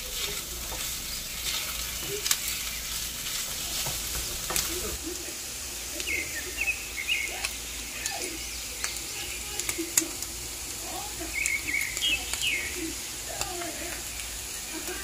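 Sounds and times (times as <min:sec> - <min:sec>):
birds chirping: 0:00.0 - 0:15.0
food sizzling in a pan: 0:00.0 - 0:15.0.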